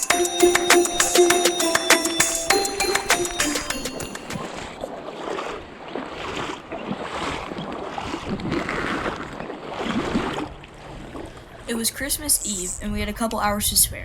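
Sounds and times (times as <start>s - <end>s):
wind buffeting microphone: 7.5s - 14.0s.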